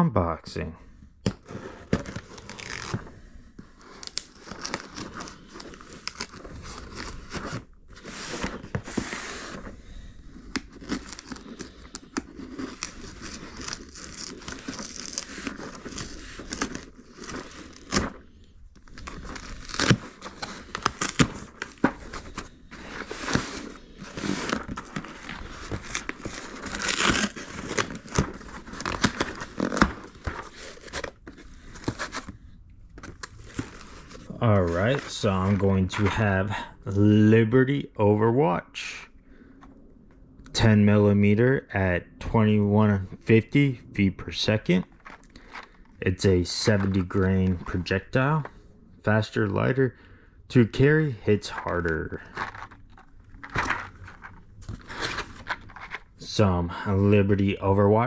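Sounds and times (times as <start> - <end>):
tape and packing tearing: 2.0 - 3.0, 3.8 - 9.6, 10.5 - 18.2, 18.9 - 32.3.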